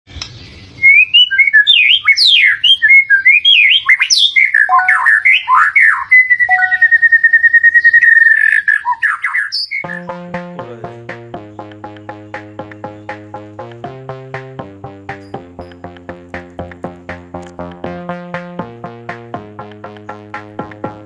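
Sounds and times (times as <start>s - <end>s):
electronic music with beat: 9.8s - 21.0s.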